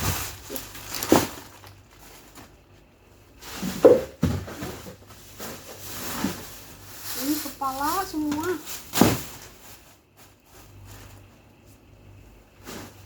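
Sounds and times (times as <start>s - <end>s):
frozen packages knocking: 0.0s - 2.6s, 3.5s - 9.8s
plastic bags rustling: 0.0s - 13.0s.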